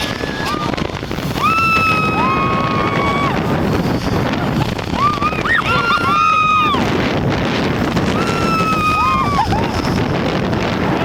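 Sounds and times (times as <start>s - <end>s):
people shrieking: 0.0s - 0.8s, 1.4s - 3.5s, 4.9s - 7.0s, 8.1s - 9.8s
wind noise: 0.0s - 11.0s.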